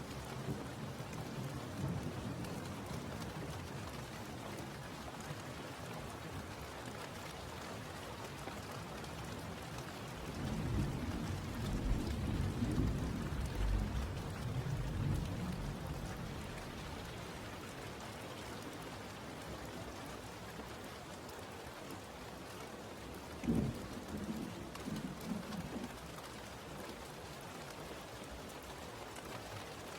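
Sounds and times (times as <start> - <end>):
rain falling: 0.0 - 29.9
rolling thunder: 10.6 - 17.1.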